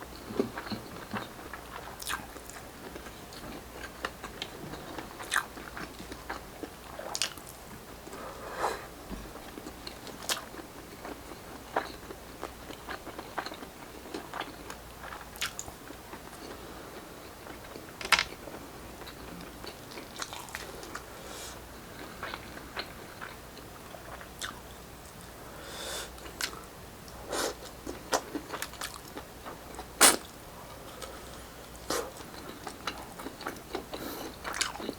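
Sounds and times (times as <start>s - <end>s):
chewing and biting food: 0.4s - 7.6s, 9.4s - 16.6s, 19.0s - 21.1s, 31.9s - 34.9s.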